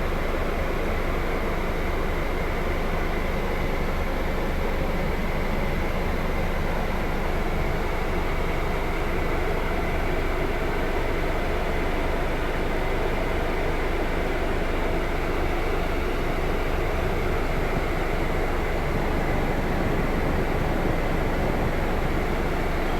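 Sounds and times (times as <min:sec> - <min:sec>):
coach engine drone: 0:12.1 - 0:22.9.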